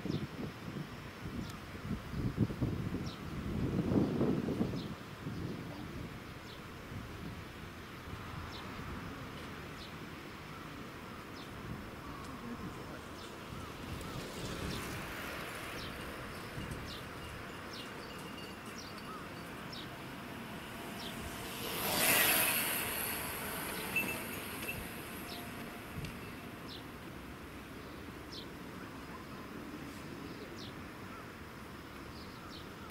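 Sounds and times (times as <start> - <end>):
steady outdoor noise: 0.0 - 32.9
train passing: 13.0 - 28.3
short high-pitched chirps: 22.4 - 26.5.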